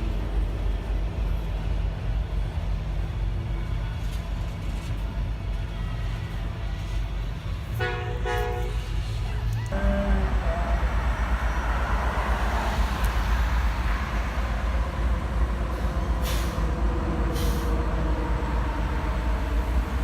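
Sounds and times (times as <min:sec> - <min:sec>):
freight train rumbling: 0:00.0 - 0:20.0
train horn: 0:07.7 - 0:11.8
short hisses: 0:16.2 - 0:16.7, 0:17.3 - 0:17.8.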